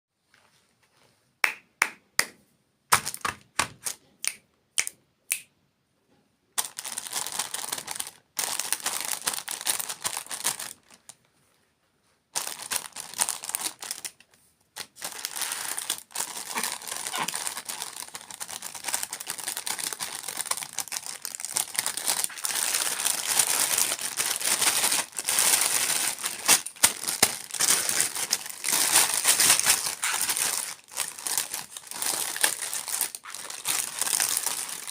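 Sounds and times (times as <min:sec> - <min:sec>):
packaging crinkling: 0:14.8 - 0:34.9.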